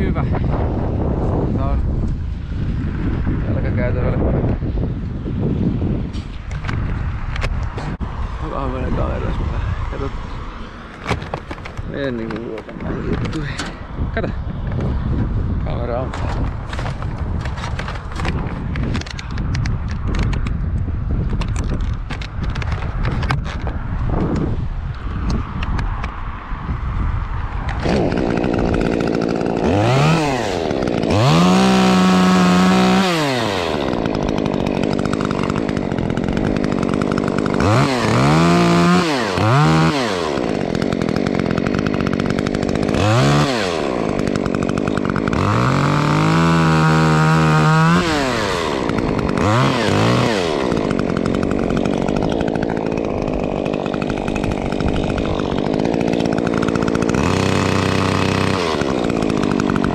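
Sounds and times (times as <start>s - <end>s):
chainsaw idling and revving: 7.3s - 14.3s, 16.0s - 19.3s, 27.6s - 59.9s.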